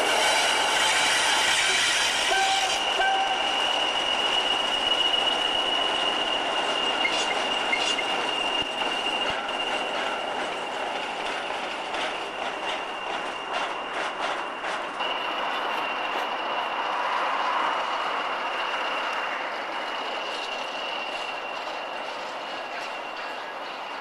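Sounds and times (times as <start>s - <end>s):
train rumble: 0.0s - 24.0s
train wheels squealing: 0.0s - 24.0s
wheels clicking over rail joints: 5.9s - 16.4s.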